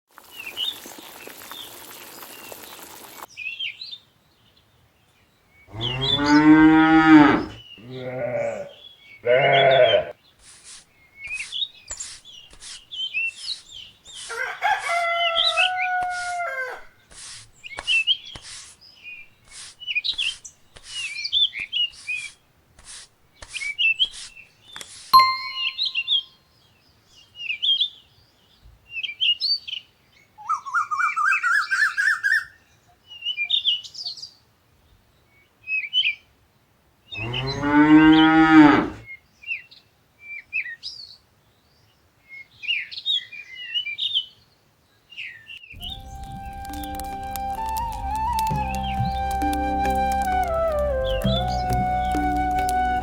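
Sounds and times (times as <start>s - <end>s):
birds chirping: 5.6s - 14.3s, 37.1s - 39.0s, 45.8s - 53.0s
cow mooing: 5.7s - 10.1s, 37.2s - 39.0s
long animal call: 5.7s - 10.1s, 37.2s - 39.0s
animal bleating calls: 5.7s - 10.2s, 37.2s - 39.0s.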